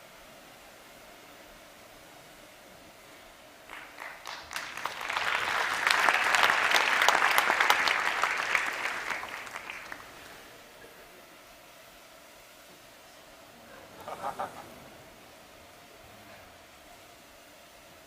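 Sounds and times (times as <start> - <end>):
audience clapping: 3.7 - 10.4.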